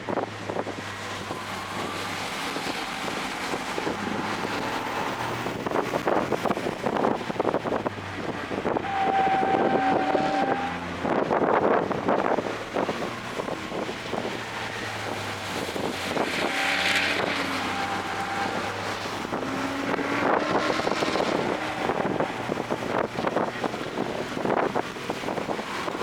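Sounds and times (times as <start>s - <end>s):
car engine running at low revs: 0.0s - 26.0s
wind buffeting microphone: 0.0s - 26.0s.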